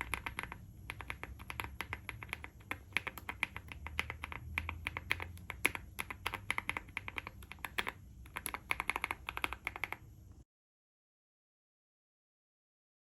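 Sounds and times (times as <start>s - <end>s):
mechanical keyboard typing: 0.0s - 10.1s.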